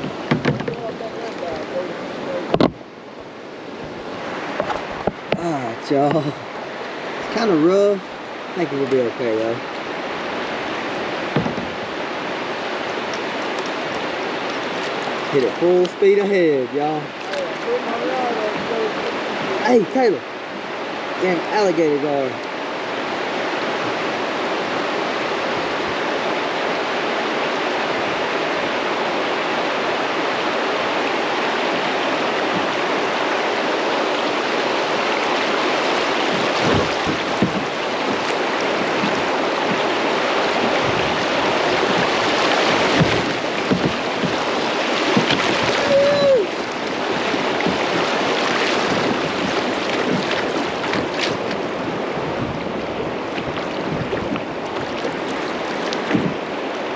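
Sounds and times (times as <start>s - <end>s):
sharp knocks: 0.0s - 0.8s, 2.5s - 2.8s, 11.3s - 11.8s, 56.0s - 56.4s
rapids rushing water: 0.0s - 56.9s.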